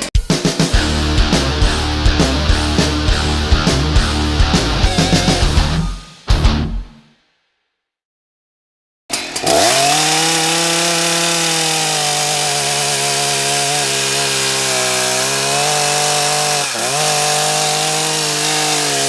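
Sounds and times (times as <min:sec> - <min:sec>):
chainsaw cutting wood at high revs: 0:09.1 - 0:19.0.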